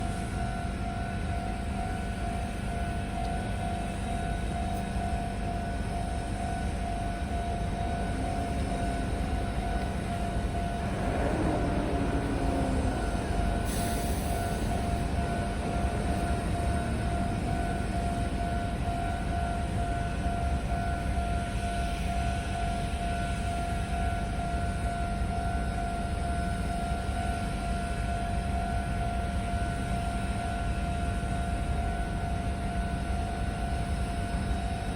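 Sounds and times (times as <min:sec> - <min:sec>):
electric train rumble: 0:00.0 - 0:34.9
steady high tone: 0:00.4 - 0:26.6.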